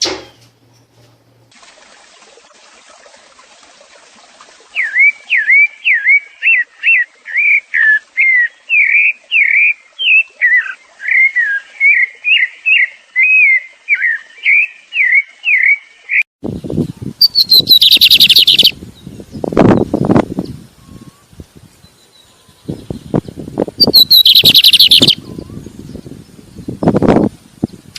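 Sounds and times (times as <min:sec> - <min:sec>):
songbird whistling: 0:17.2 - 0:18.8, 0:23.8 - 0:25.6.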